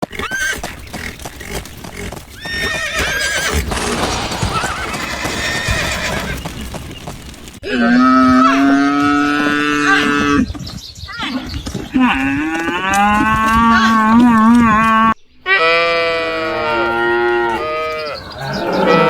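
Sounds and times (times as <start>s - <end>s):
cow mooing: 12.7s - 19.0s.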